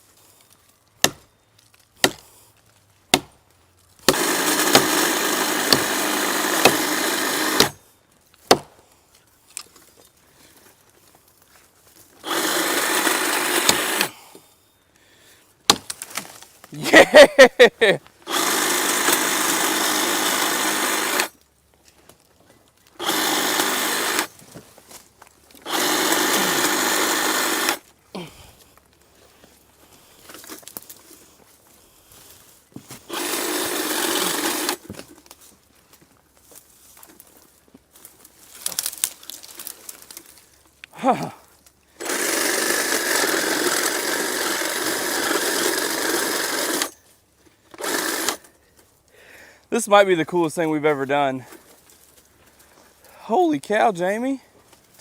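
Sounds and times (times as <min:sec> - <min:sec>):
electric power saw cutting brush: 0:04.1 - 0:07.8, 0:12.2 - 0:14.1, 0:18.2 - 0:21.4, 0:23.0 - 0:24.4, 0:25.6 - 0:27.9, 0:33.0 - 0:34.9, 0:42.0 - 0:47.0, 0:47.7 - 0:48.5.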